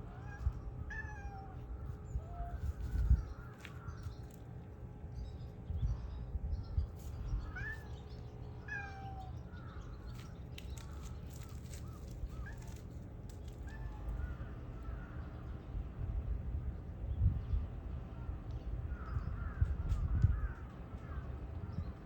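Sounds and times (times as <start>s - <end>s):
wind rumble on microphone: 0.0s - 22.0s
cat meowing: 0.1s - 1.6s, 8.7s - 9.3s.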